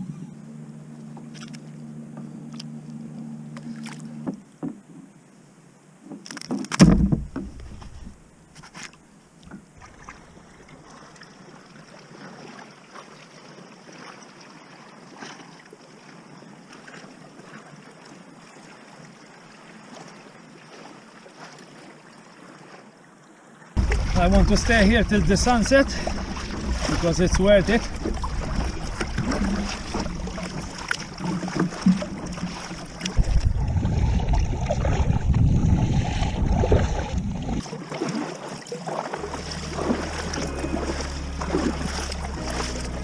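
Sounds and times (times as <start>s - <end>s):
steady low hum: 0.0s - 4.6s, 23.8s - 37.6s, 39.2s - 43.0s
water splashing against kayak: 0.0s - 5.1s, 6.0s - 43.0s.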